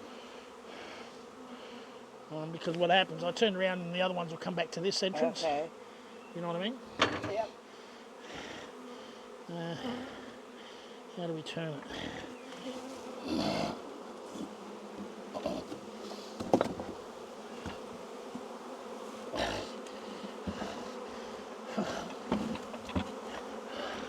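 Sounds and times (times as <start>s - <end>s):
honey bees buzzing: 0.0s - 24.0s
wooden hive boxes knocking: 7.0s - 7.5s, 14.3s - 18.6s, 19.4s - 21.0s, 21.8s - 24.0s.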